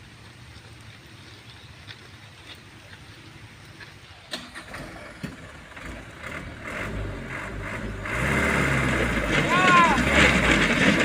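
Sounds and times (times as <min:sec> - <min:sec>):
diesel truck engine running: 0:04.1 - 0:11.0.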